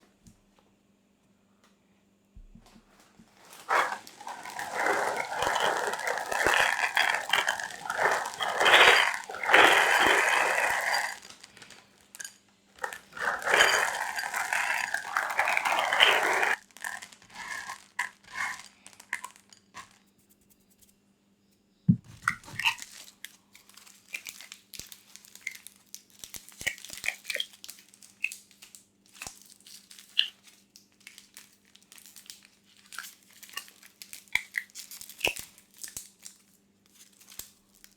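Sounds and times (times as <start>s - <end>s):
plastic packaging crinkling: 3.4s - 12.2s, 12.8s - 19.2s.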